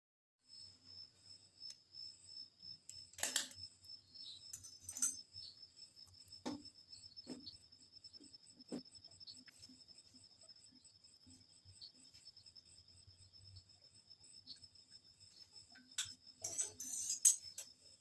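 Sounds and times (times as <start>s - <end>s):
sharp clicks and knocks: 15.8s - 17.8s.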